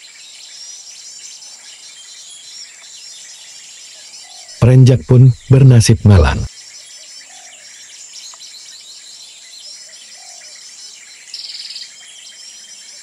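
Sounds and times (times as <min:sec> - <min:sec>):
songbirds twittering: 0:00.0 - 0:04.6, 0:06.6 - 0:13.0.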